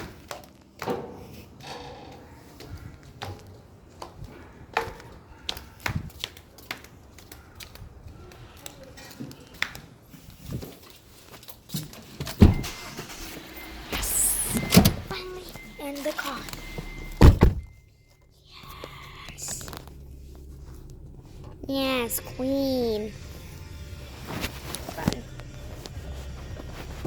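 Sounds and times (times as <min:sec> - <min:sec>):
loud low thump: 0:16.5 - 0:17.8.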